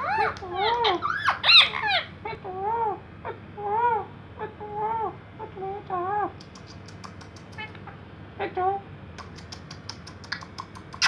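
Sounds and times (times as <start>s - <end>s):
parrot whiny calls: 0.0s - 6.3s.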